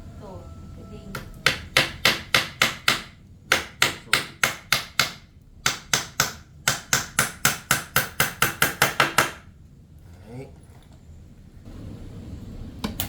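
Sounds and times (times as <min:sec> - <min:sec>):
hammer driving nails: 0:01.2 - 0:09.5.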